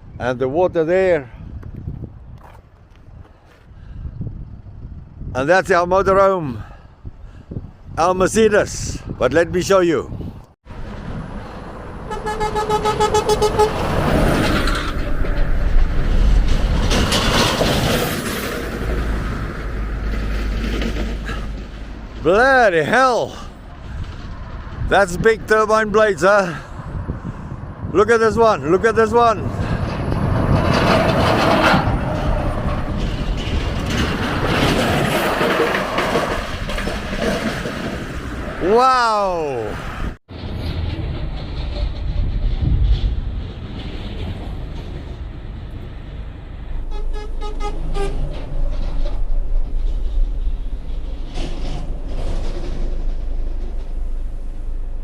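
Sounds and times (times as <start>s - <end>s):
heavy truck rumbling past: 10.7s - 25.0s, 29.4s - 38.6s, 39.9s - 55.0s
vehicle horn short toots: 12.1s - 13.8s.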